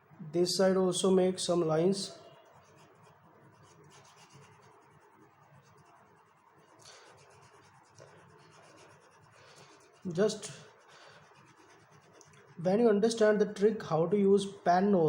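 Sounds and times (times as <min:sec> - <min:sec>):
pen scratching on paper: 0:02.4 - 0:12.7.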